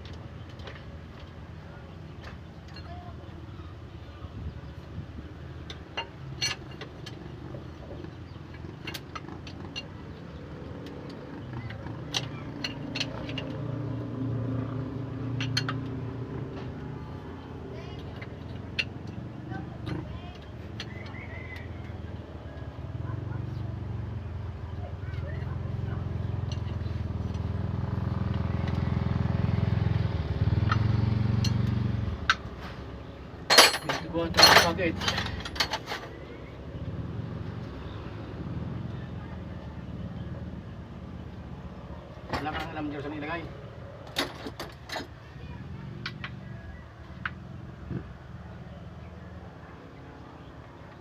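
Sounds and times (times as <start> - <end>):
vehicle engine humming: 0.0 - 51.0
metallic clinks of tools: 33.5 - 36.1.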